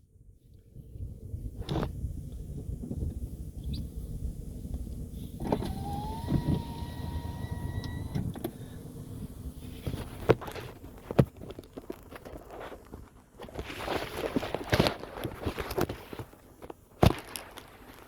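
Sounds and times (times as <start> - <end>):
low vehicle rumble: 0.1 - 13.4
electric window motor whining: 5.4 - 9.5.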